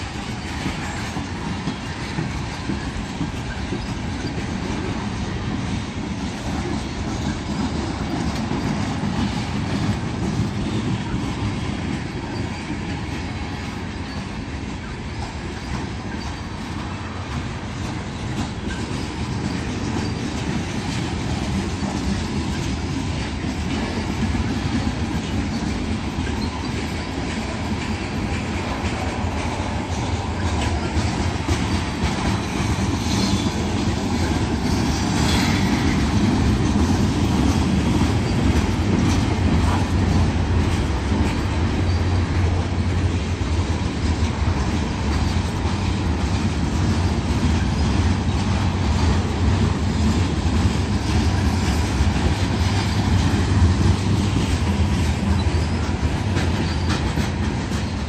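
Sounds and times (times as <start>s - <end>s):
train wheels clacking: 0.0s - 58.0s
wheel squeal: 15.5s - 17.0s, 18.1s - 20.5s, 32.4s - 36.0s, 41.8s - 42.2s, 55.3s - 58.0s.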